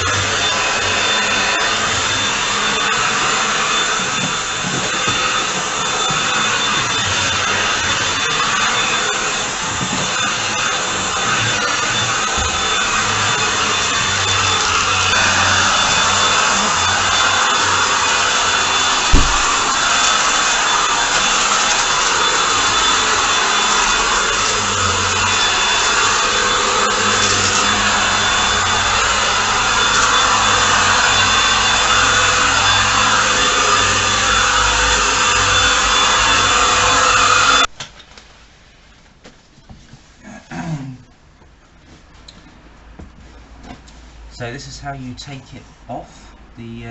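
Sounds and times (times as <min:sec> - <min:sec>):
vacuum cleaner whirring: 0:00.0 - 0:37.8
sharp knock: 0:19.1 - 0:19.5.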